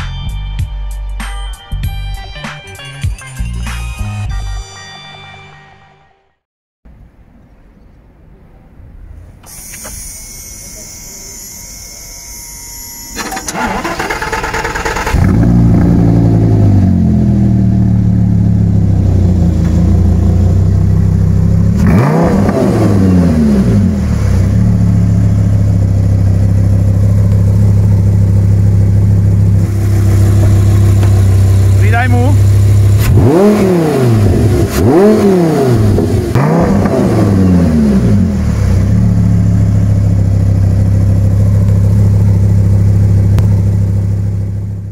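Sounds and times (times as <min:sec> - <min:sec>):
car engine starting and idling: 0:09.2 - 0:44.9.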